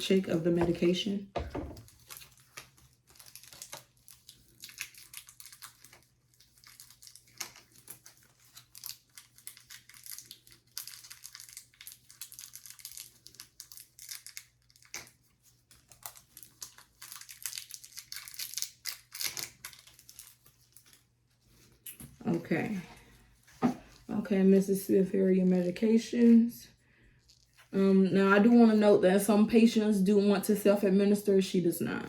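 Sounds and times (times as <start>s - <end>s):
medication packets crinkling: 1.6s - 22.0s.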